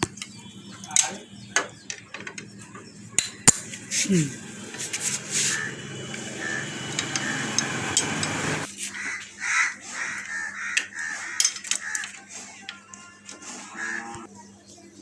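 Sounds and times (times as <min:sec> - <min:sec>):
crows cawing: 0:05.3 - 0:07.8, 0:08.8 - 0:12.3, 0:13.6 - 0:14.3.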